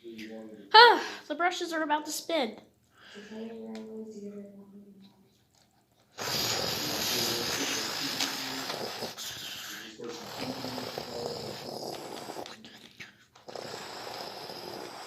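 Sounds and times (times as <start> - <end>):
toy spinning brush whirring: 6.2 - 12.6.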